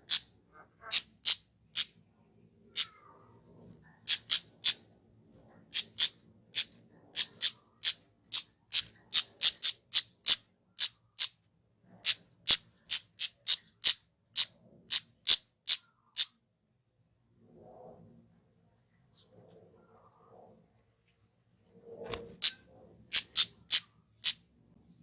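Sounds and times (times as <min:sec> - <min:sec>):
bird giving sharp high calls: 0:00.0 - 0:01.9, 0:04.1 - 0:04.8, 0:05.7 - 0:11.4, 0:12.0 - 0:16.3, 0:22.2 - 0:24.4.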